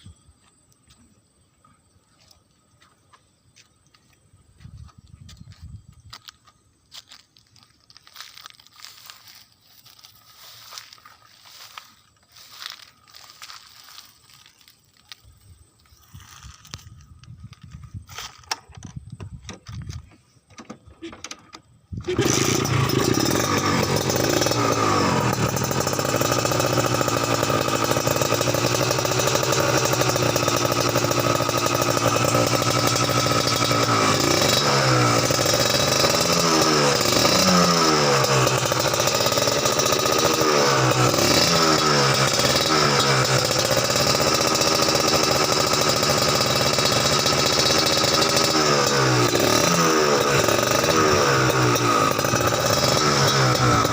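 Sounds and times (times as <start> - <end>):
two-stroke motorcycle engine revving: 22.0 - 53.9.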